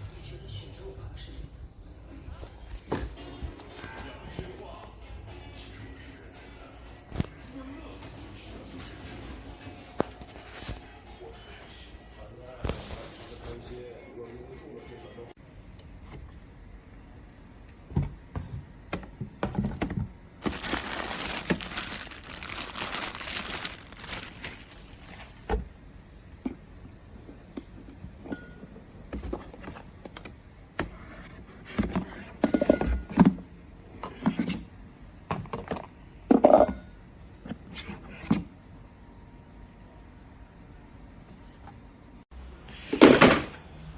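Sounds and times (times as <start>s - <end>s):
plastic packaging crinkling: 20.4s - 25.5s.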